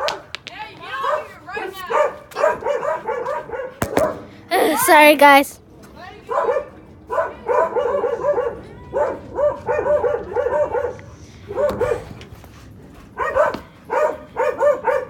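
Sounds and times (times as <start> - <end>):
dog barking: 1.9 - 3.8, 6.3 - 12.1, 13.2 - 15.0.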